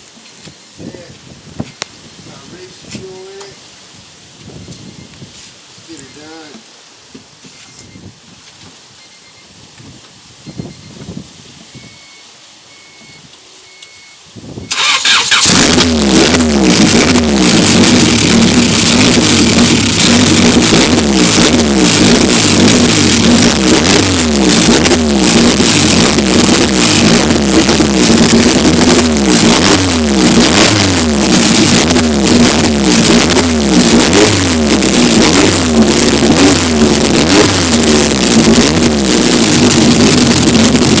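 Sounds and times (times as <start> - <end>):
car engine revving: 14.7 - 41.0
engine cranking: 14.7 - 41.0.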